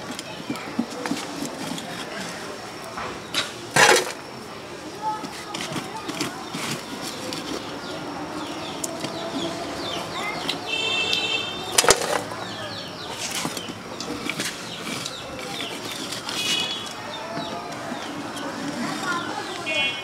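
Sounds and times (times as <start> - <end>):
small birds chirping: 4.3 - 20.0.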